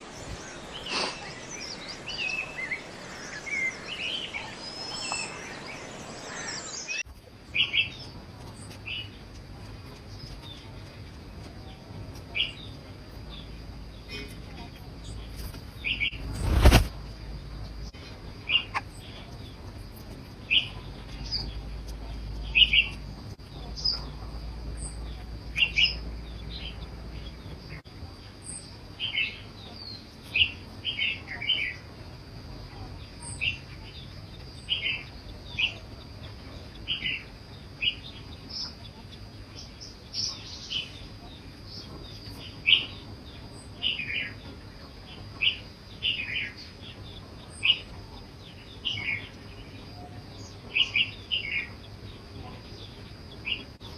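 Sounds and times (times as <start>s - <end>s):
faint steady high tone: 0.0s - 7.0s
bird chirping: 0.0s - 10.7s, 20.4s - 27.8s, 32.7s - 53.9s.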